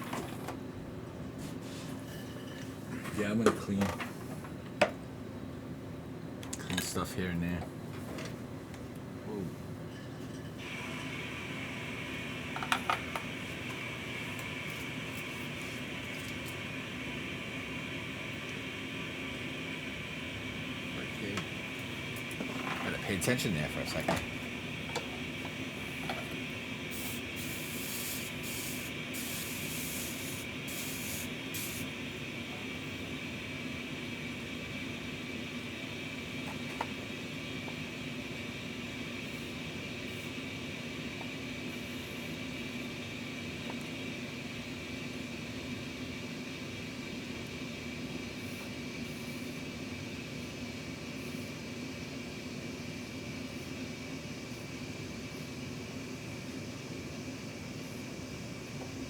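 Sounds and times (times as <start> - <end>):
constant hiss: 10.5 - 52.8
machine hum: 10.6 - 46.0
bursts of high hiss: 25.8 - 32.2.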